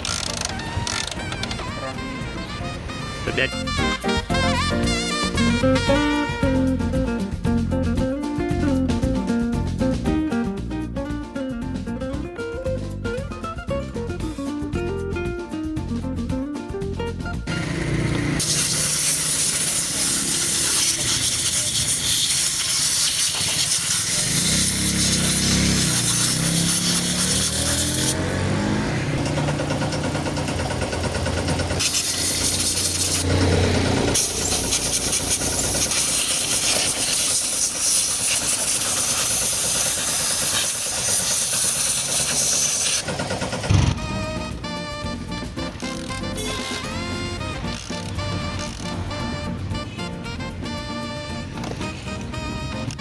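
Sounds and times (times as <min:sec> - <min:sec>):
motorcycle engine misfiring: 0:00.0 - 0:01.9, 0:28.8 - 0:44.4.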